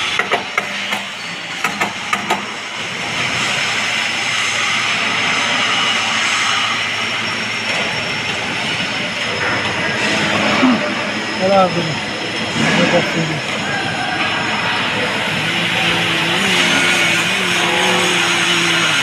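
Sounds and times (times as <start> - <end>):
faint high whine: 2.5 - 19.0
welding equipment hissing: 15.1 - 19.0.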